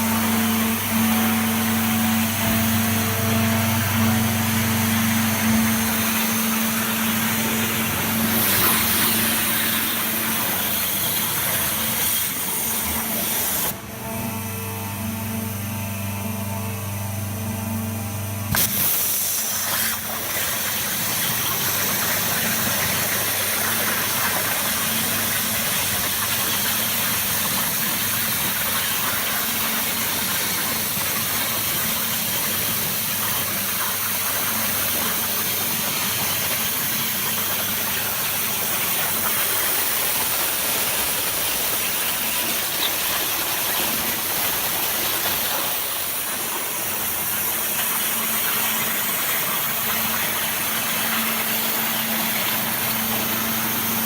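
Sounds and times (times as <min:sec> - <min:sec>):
machine humming: 0:00.0 - 0:54.0
high-pressure water jet hissing: 0:05.0 - 0:13.7, 0:18.5 - 0:36.4.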